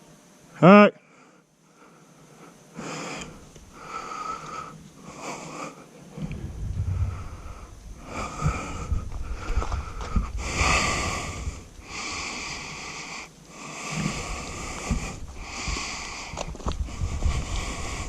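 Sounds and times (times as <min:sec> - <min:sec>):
hissing rushes: 0:06.2 - 0:18.0.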